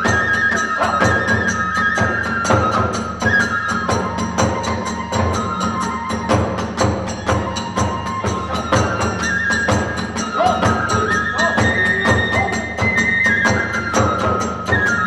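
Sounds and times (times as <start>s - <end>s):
bamboo flute: 0.0s - 15.0s
drums beating: 0.0s - 15.0s.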